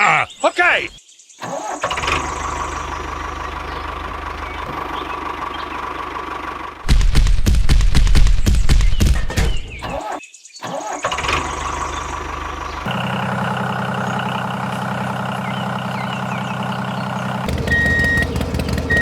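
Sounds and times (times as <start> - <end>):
engine running with thin whine: 1.9 - 6.9, 11.3 - 19.0
rough knocking engine rumble: 2.1 - 8.8, 11.4 - 19.0.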